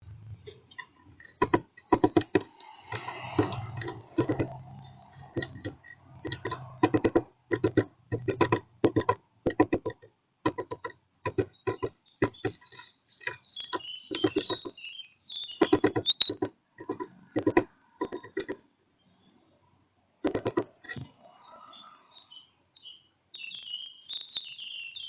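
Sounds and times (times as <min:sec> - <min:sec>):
bird tapping on wood: 0:00.5 - 0:14.9, 0:15.5 - 0:18.7, 0:20.2 - 0:21.1
faint high chirps: 0:11.4 - 0:16.4, 0:21.2 - 0:25.0.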